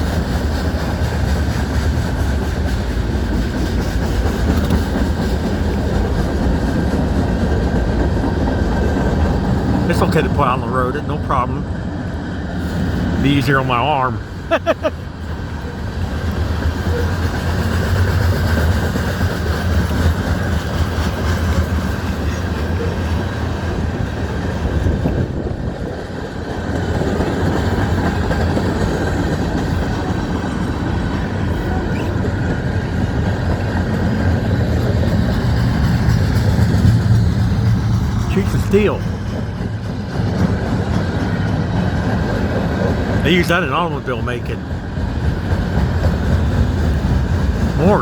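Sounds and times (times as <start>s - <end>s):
train wheels rumbling on track: 0.0s - 48.0s.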